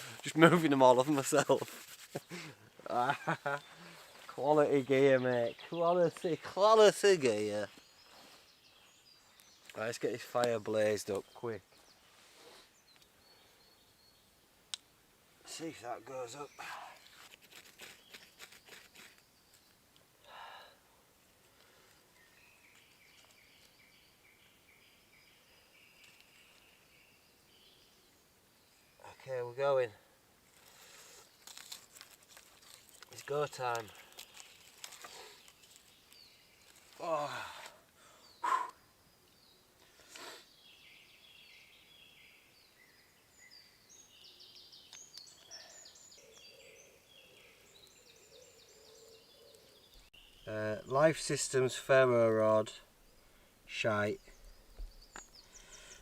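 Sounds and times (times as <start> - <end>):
songbirds chirping and trilling: 0.0 - 56.0
loud bird call: 38.4 - 38.9.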